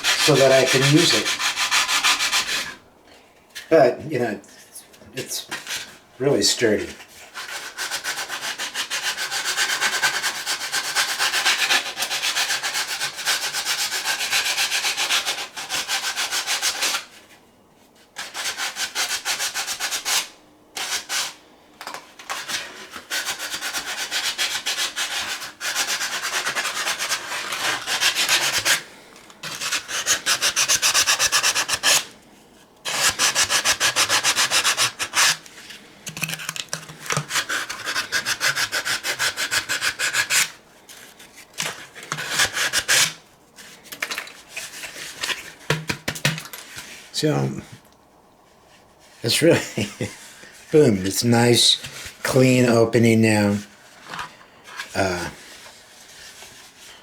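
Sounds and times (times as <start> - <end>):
sandpaper scraping gourd: 0.0 - 2.8, 7.0 - 17.2, 18.2 - 21.4, 22.2 - 32.1, 32.9 - 45.7.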